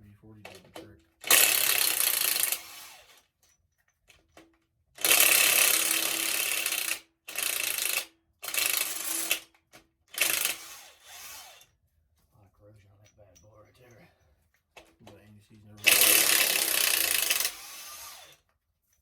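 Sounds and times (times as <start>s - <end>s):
impact wrench bursts: 1.2s - 3.3s, 5.0s - 9.5s, 10.1s - 11.7s, 15.8s - 18.4s.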